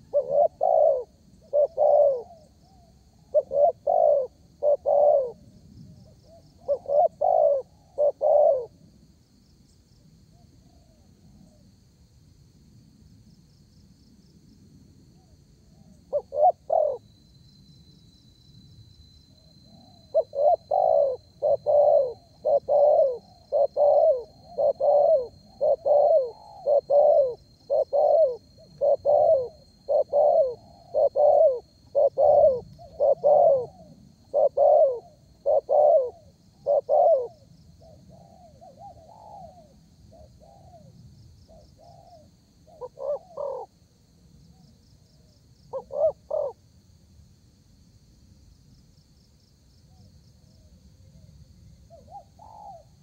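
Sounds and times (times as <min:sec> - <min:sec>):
dove cooing: 0:00.0 - 0:08.8, 0:15.2 - 0:17.0, 0:19.6 - 0:40.9, 0:41.5 - 0:43.7, 0:45.7 - 0:46.6, 0:51.9 - 0:53.0
faint steady high tone: 0:14.4 - 0:46.6.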